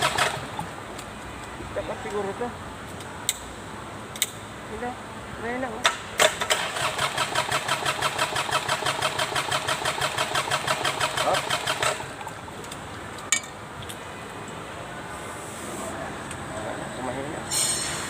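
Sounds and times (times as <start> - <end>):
tractor engine cranking on starter: 0.0 - 0.6, 6.2 - 12.1.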